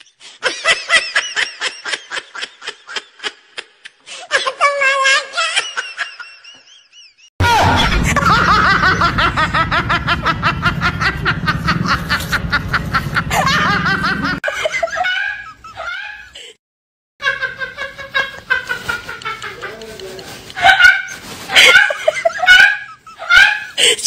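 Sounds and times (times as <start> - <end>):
laughing sound effects: 7.4 - 16.5, 17.4 - 24.0.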